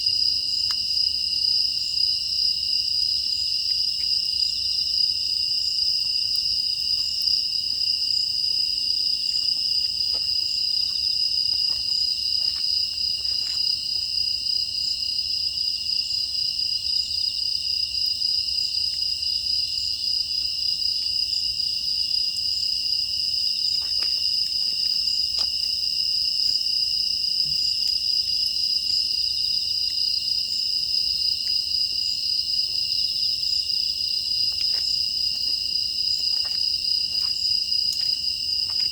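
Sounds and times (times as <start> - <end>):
crickets chirring: 0.0 - 38.9
firewood crackling: 34.2 - 38.9.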